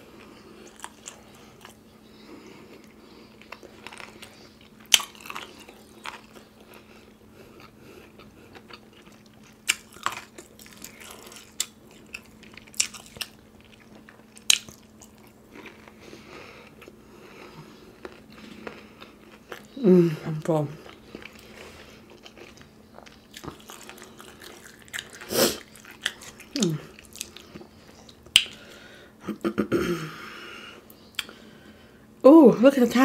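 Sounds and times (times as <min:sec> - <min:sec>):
person chewing: 0:00.0 - 0:19.8, 0:20.8 - 0:29.0, 0:30.8 - 0:31.5
faint steady hum: 0:00.0 - 0:33.0
crunchy bites: 0:03.4 - 0:06.9.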